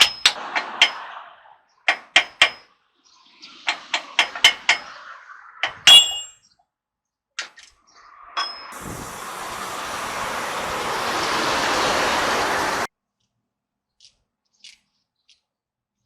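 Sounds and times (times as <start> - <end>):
long even rushing hiss: 8.8 - 12.9.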